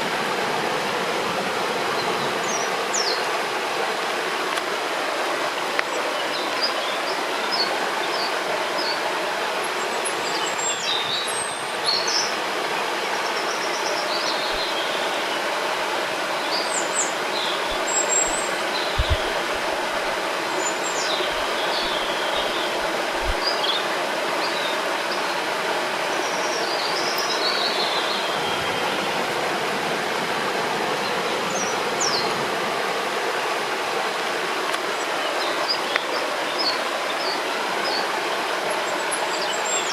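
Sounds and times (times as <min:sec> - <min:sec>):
river water flowing: 0:00.0 - 0:39.9
small birds chirping: 0:13.2 - 0:15.3, 0:16.4 - 0:25.4
soft low thumps: 0:17.7 - 0:20.2, 0:23.2 - 0:23.5.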